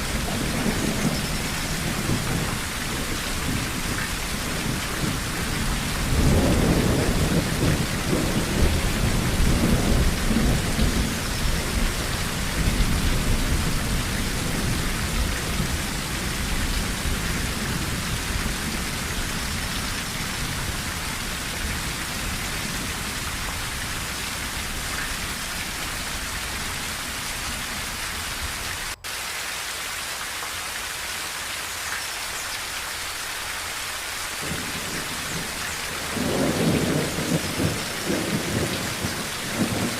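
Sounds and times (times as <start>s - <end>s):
thunder rolling: 0.0s - 26.6s, 34.4s - 39.9s
heavy rain on a tin roof: 0.0s - 39.9s.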